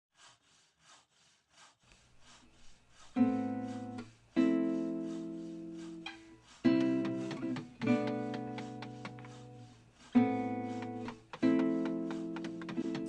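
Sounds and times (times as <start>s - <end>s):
soft percussion taps: 6.1s - 9.6s, 10.2s - 13.0s.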